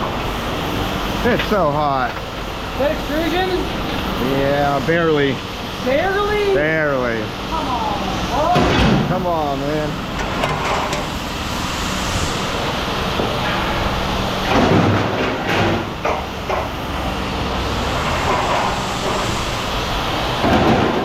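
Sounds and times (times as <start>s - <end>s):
engine running: 0.0s - 21.0s
sharp knocks: 14.4s - 16.7s.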